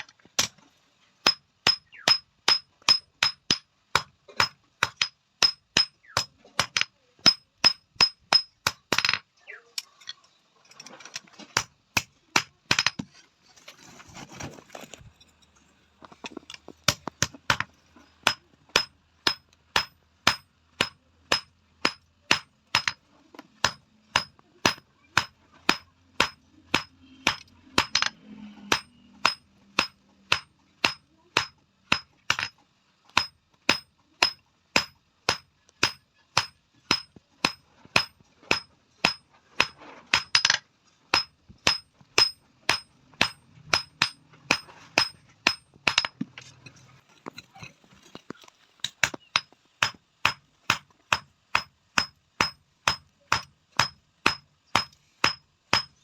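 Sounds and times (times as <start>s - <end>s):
hammer striking steel on anvil: 1.2s - 9.2s, 18.2s - 23.0s, 23.6s - 32.6s, 33.2s - 46.2s, 49.0s - 56.0s.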